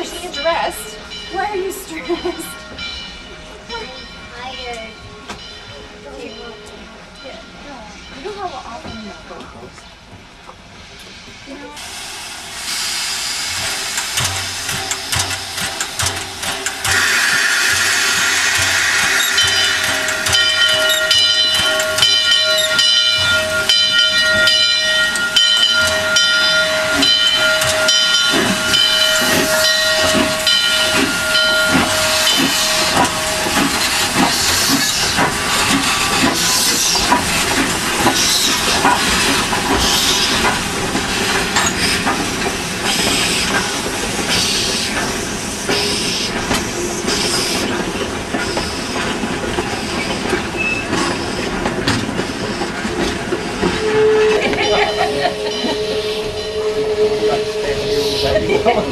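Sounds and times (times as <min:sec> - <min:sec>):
steam locomotive hissing: 0:00.0 - 0:58.9
locomotive exhaust chuffs: 0:11.9 - 0:58.9
steam whistle blast: 0:53.8 - 0:58.5.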